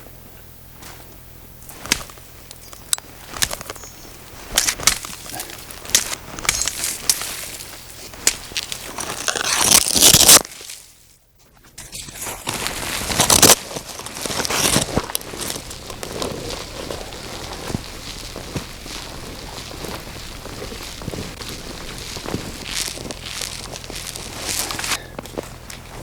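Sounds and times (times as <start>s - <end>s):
icy branches cracking and snapping: 0.8s - 11.1s, 11.7s - 26.0s
rustling wood and ice: 0.8s - 26.0s.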